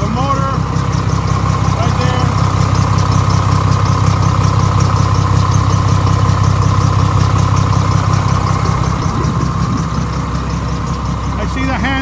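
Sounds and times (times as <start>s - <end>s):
diesel truck engine idling: 0.0s - 12.0s
rapid exhaust pulsing: 0.0s - 12.0s.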